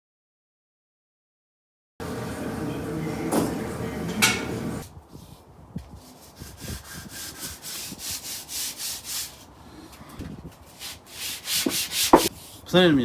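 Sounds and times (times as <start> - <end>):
hand rubbing strokes: 5.0 - 12.7.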